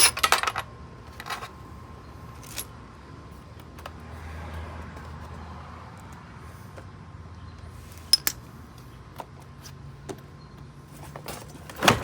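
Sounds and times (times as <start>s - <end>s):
metal tools clinking and knocking: 0.0s - 1.6s, 8.0s - 8.4s.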